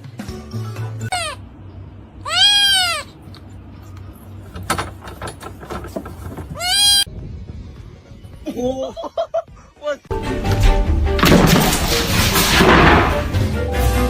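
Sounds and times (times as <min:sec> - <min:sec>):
animal crying: 0:01.0 - 0:01.5, 0:02.2 - 0:03.2, 0:06.5 - 0:07.1.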